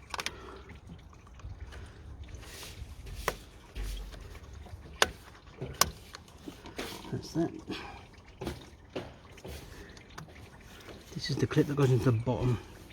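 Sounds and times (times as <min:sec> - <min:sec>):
plastic hose clip clicking: 0:00.0 - 0:00.4.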